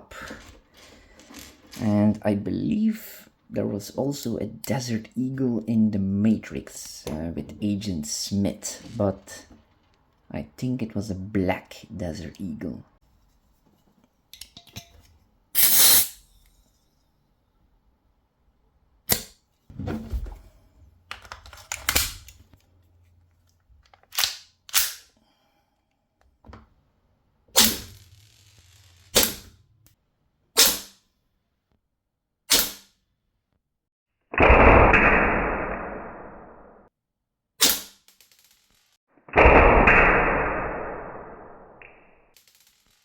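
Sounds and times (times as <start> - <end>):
airsoft pistol shots: 27.6 - 28.0, 29.1 - 29.6, 39.4 - 41.4.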